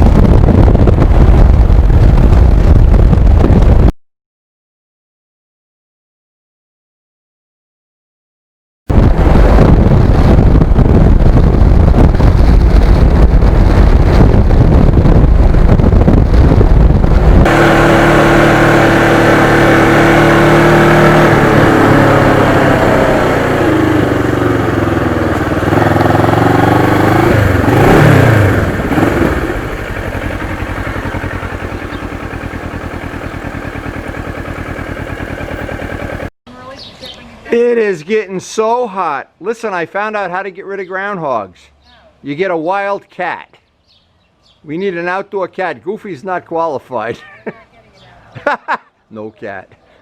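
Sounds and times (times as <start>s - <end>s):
motorcycle engine: 0.0s - 3.9s, 8.9s - 36.6s
wind rush: 0.0s - 3.9s, 8.9s - 33.2s.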